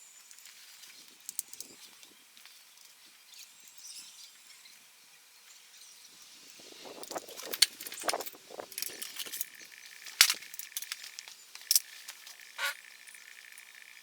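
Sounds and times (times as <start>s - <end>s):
metal tools clinking and rattling: 7.3s - 12.5s.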